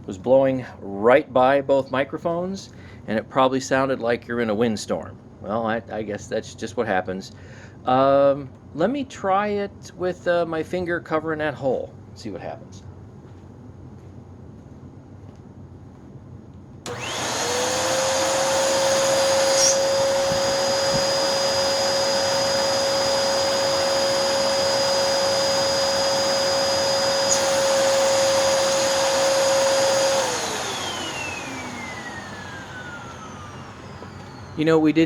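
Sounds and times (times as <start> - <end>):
vacuum motor whine: 16.8 - 35.0.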